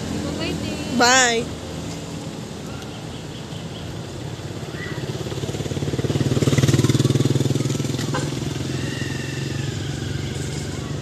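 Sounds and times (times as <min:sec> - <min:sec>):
motorcycle engine running: 0:04.9 - 0:11.0.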